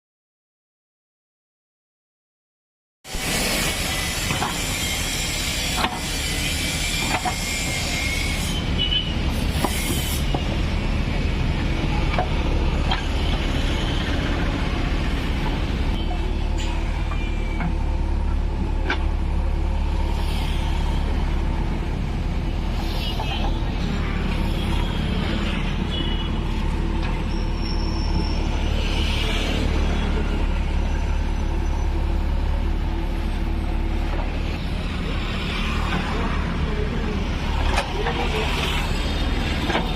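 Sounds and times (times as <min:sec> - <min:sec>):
diesel engine running under load: 0:08.8 - 0:39.9
high-pitched squeals: 0:22.8 - 0:32.6.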